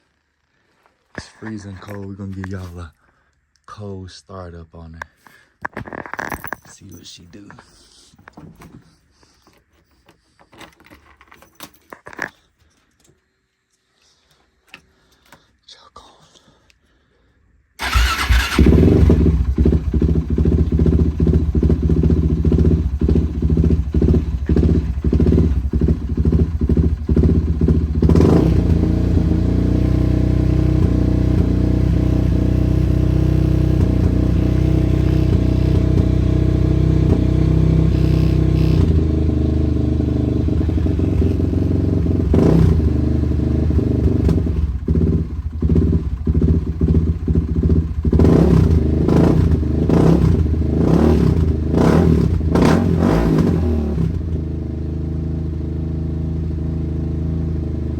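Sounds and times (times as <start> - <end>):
quad engine running: 17.8 - 57.9.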